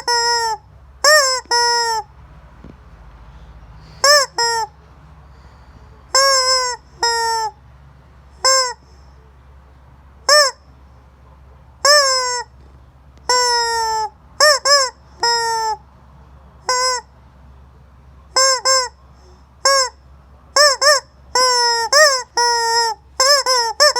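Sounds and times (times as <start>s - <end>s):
rubber chicken toy squawking: 0.0s - 2.1s, 3.8s - 4.8s, 6.1s - 7.6s, 8.4s - 9.0s, 10.2s - 10.7s, 11.8s - 12.6s, 13.3s - 15.8s, 16.6s - 17.1s, 18.3s - 19.0s, 19.6s - 23.9s.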